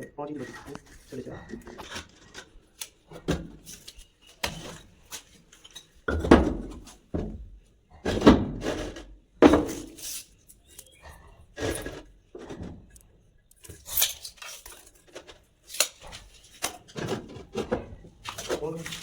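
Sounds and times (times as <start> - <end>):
materials knocking and clattering: 6.1 - 10.0.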